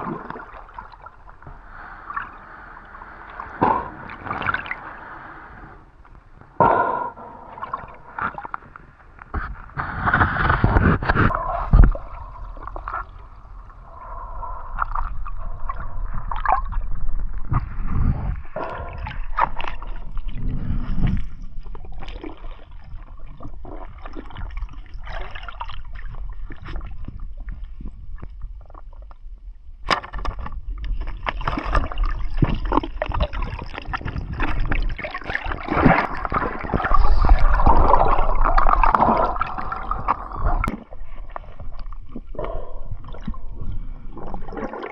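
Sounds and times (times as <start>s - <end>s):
water sloshing and gurgling: 0.0s - 44.9s
knocks and splashes: 29.9s - 40.9s.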